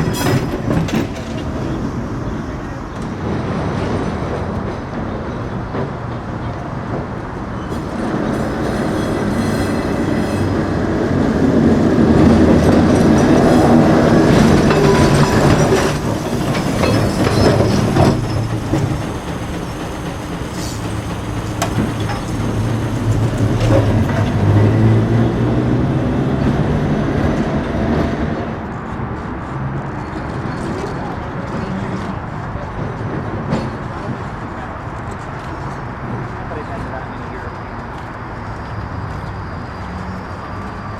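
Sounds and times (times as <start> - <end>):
streetcar wheels rumbling and clacking: 0.0 - 40.9
faint wheel squeal: 7.5 - 10.7, 29.9 - 32.2.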